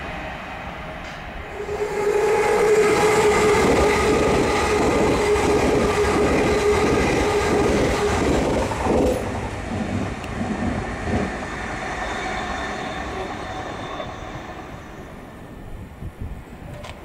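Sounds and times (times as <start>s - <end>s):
distant train running: 0.0s - 17.0s
train passing close: 0.0s - 17.0s.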